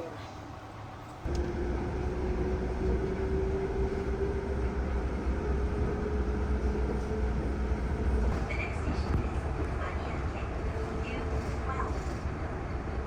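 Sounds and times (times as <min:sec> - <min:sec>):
train rumble inside carriage: 0:00.0 - 0:13.0
train motor whine: 0:01.3 - 0:08.6.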